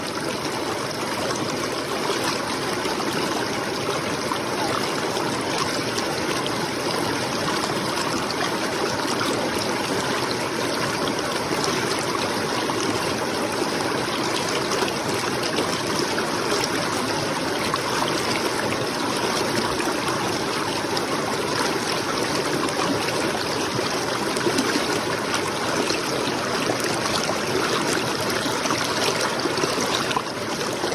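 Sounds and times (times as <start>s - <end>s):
stream water running: 0.0s - 30.9s.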